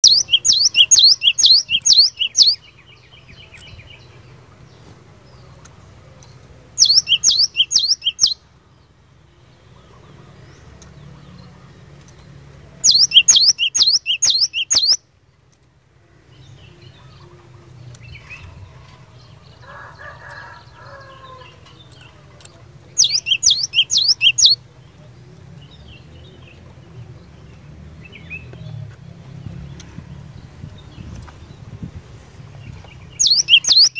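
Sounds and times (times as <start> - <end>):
bird singing sharp repeated notes: 0.0 - 4.2, 5.4 - 11.5, 12.8 - 15.2, 22.8 - 25.0, 32.7 - 33.9.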